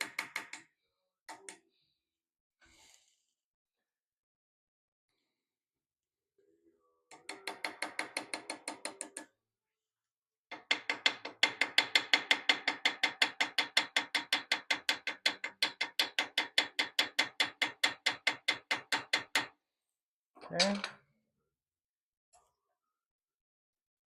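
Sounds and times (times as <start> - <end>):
small hammer tapping metal: 7.1 - 9.3, 10.5 - 19.5.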